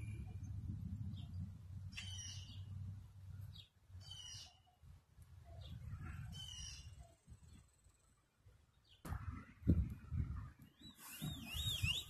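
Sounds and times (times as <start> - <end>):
bird calling: 10.8 - 12.0.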